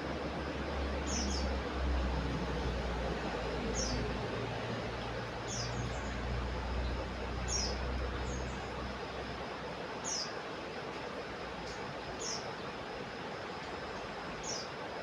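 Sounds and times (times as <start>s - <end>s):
bird chirping: 1.1s - 1.5s, 5.5s - 6.1s, 7.5s - 8.5s.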